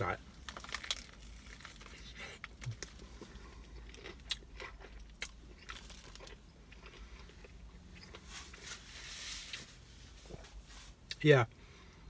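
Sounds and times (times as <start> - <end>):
person crunching fried chicken: 0.3 - 8.6.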